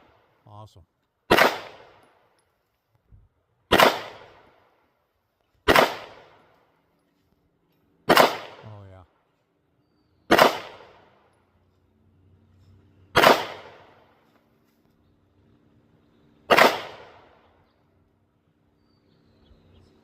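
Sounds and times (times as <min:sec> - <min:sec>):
pistol shots: 0:01.3 - 0:02.2, 0:03.7 - 0:04.6, 0:05.6 - 0:06.5, 0:08.0 - 0:08.8, 0:10.3 - 0:11.2, 0:13.1 - 0:14.1, 0:16.4 - 0:17.5.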